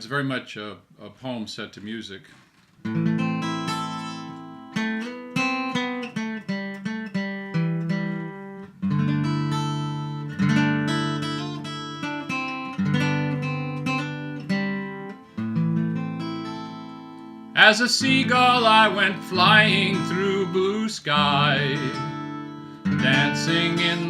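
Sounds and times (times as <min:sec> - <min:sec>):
acoustic guitar picking and strumming: 0:02.8 - 0:24.0.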